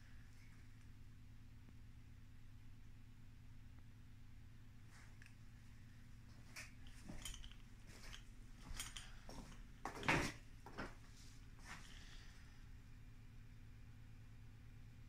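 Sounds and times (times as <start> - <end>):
light knocks and clinks: 6.3 - 11.0.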